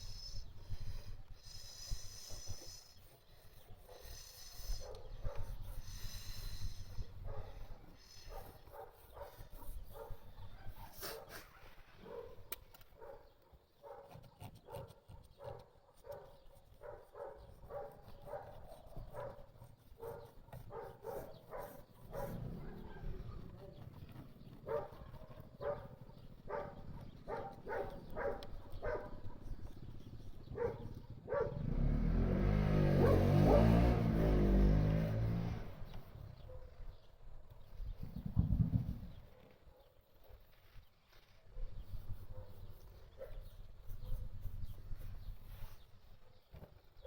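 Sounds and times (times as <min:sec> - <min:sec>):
dog barking and yelping: 0:08.3 - 0:12.4, 0:13.0 - 0:23.6, 0:24.6 - 0:29.5, 0:30.5 - 0:31.7, 0:32.7 - 0:34.5
vehicle passing: 0:22.2 - 0:23.0, 0:30.7 - 0:36.4.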